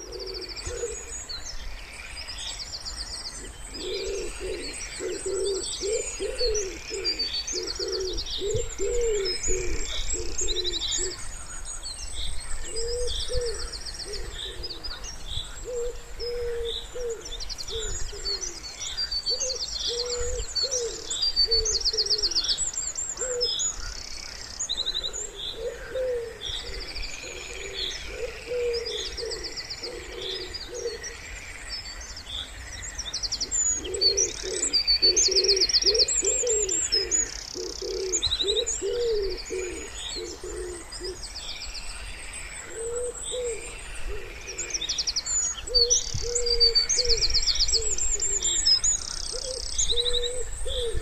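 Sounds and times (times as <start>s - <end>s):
wood pigeon cooing: 0.0s - 1.2s, 3.4s - 11.2s, 12.6s - 15.0s, 15.6s - 18.6s, 19.3s - 22.4s, 23.2s - 23.5s, 24.9s - 31.1s, 33.4s - 41.2s, 42.7s - 44.8s, 45.7s - 48.6s, 49.3s - 51.0s
songbirds trilling and chirping: 0.0s - 51.0s.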